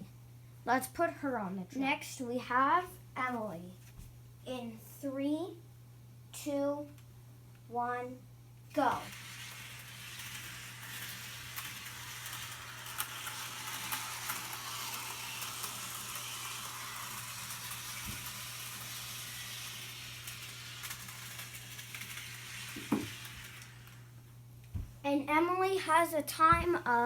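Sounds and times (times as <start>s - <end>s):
model train motor whirring: 8.7s - 24.3s
wheels clicking over rail joints: 8.8s - 24.1s.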